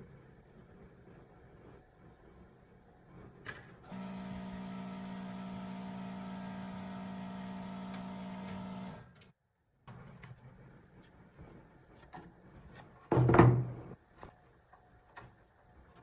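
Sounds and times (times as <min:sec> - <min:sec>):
steady electrical hum: 0:00.2 - 0:09.2.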